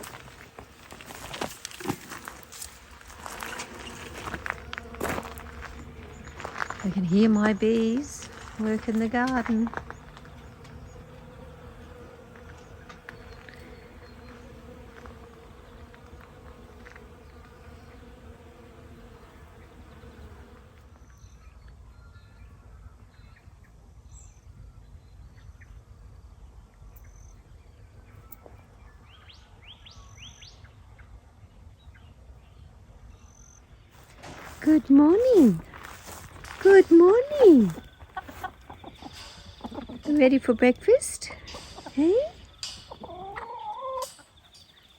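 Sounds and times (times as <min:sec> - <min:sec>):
honeybees buzzing: 0:00.0 - 0:21.3, 0:33.9 - 0:44.9.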